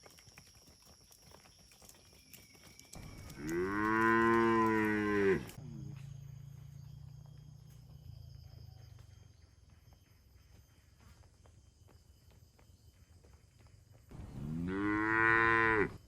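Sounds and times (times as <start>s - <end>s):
cow mooing: 3.4s - 5.6s, 14.4s - 16.0s
low hum: 14.1s - 15.1s.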